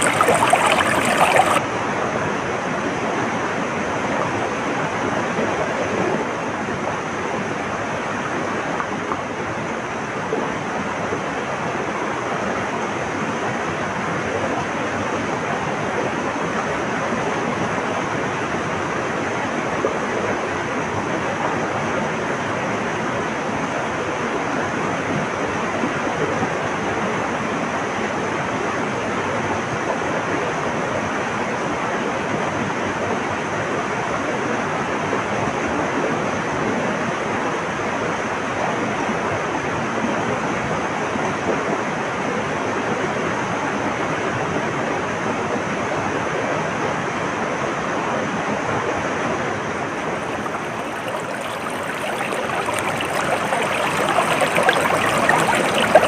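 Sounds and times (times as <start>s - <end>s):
water rushing: 0.0s - 1.6s, 49.8s - 56.0s.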